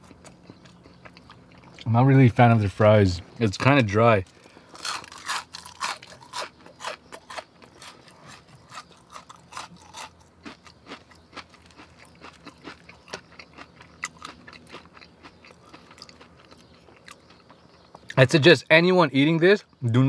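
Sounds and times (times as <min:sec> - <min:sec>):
man chewing food: 0:00.0 - 0:01.9, 0:04.2 - 0:18.2.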